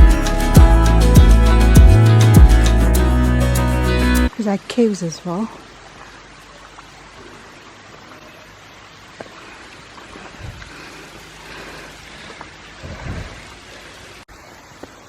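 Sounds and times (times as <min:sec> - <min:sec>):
low thumps: 0:00.0 - 0:03.4
running water: 0:00.0 - 0:15.0.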